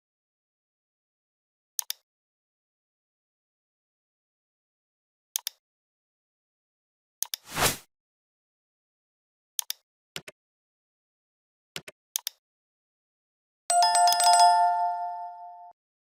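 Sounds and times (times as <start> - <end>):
bright bell-like chime: 13.7 - 15.8.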